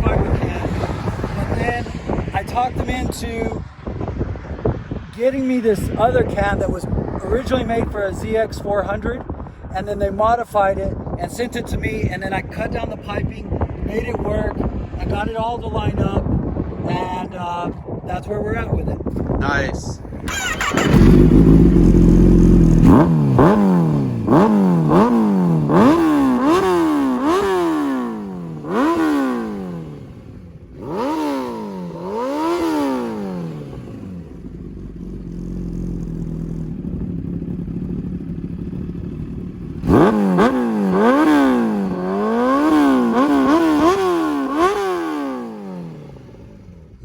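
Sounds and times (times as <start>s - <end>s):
motorcycle engine revving: 0.0s - 7.9s, 20.1s - 47.0s
motorcycle engine idling: 20.2s - 47.0s.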